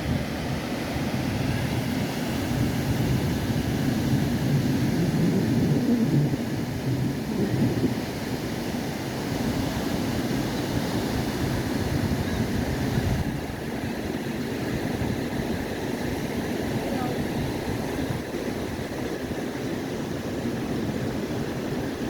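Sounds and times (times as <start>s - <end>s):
wind noise on microphone: 0.0s - 22.0s.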